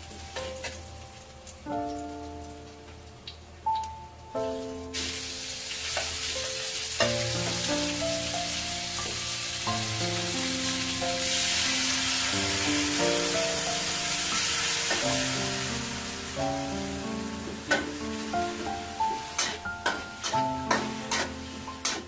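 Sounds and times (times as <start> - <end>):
beef sizzling in a wok: 0.0 - 2.9, 3.6 - 22.0
metal spatula stirring: 18.6 - 22.0.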